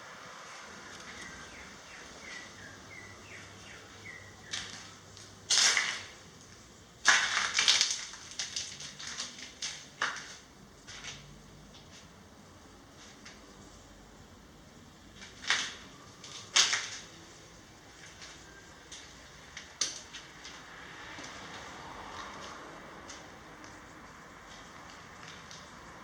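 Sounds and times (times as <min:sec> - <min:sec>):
loud crunching and rustling: 0:04.4 - 0:12.1, 0:15.1 - 0:20.7.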